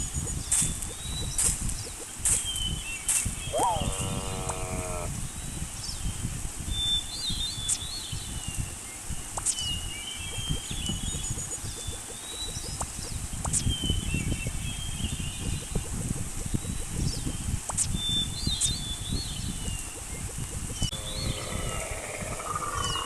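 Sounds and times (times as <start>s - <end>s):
birds chirping: 0.0s - 6.2s, 6.8s - 23.0s
steady low rumble: 18.8s - 23.0s.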